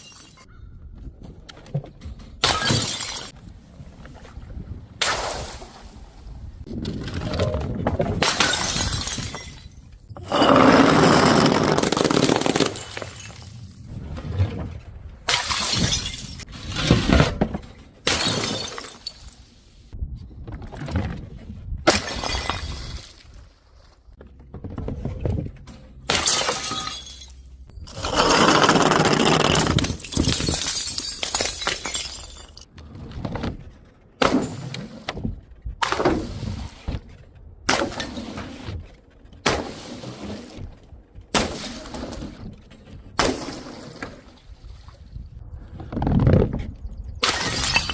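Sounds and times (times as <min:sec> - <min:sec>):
glass bottles shattering: 0:00.0 - 0:00.5, 0:02.4 - 0:03.4, 0:08.2 - 0:10.4, 0:11.8 - 0:13.9, 0:15.3 - 0:16.5, 0:18.0 - 0:19.4, 0:21.9 - 0:23.2, 0:26.1 - 0:27.6, 0:29.3 - 0:32.7, 0:47.2 - 0:47.9
glass crunching: 0:29.0 - 0:32.7.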